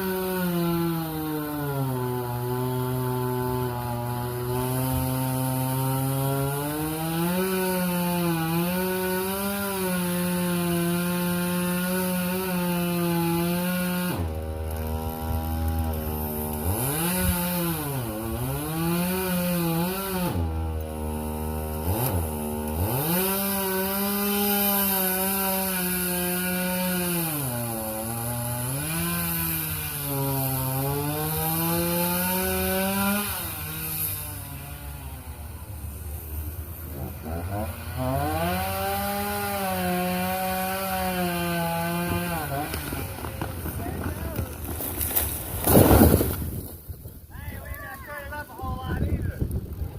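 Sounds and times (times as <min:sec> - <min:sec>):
chainsaw cutting wood: 0:00.0 - 0:47.4.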